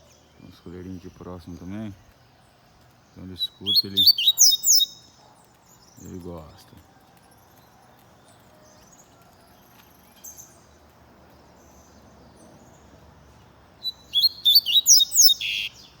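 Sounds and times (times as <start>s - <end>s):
bird chirping and singing: 0.0s - 6.6s, 13.8s - 16.0s.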